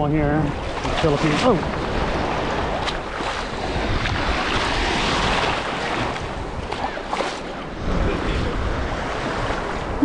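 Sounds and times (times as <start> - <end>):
sea surf washing: 0.0 - 10.0
wind buffeting microphone: 0.0 - 10.0.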